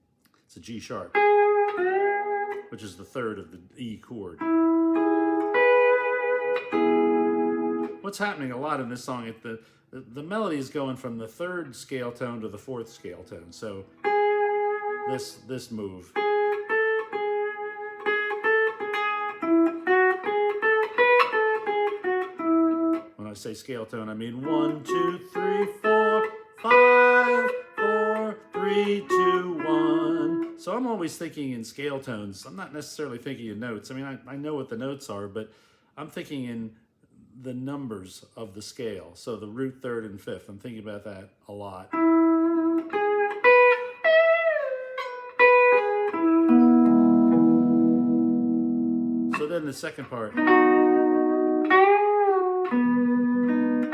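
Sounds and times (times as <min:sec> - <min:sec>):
lap steel guitar notes: 0:01.1 - 0:02.8, 0:04.4 - 0:09.0, 0:13.8 - 0:23.2, 0:24.2 - 0:31.1, 0:41.9 - 0:53.9.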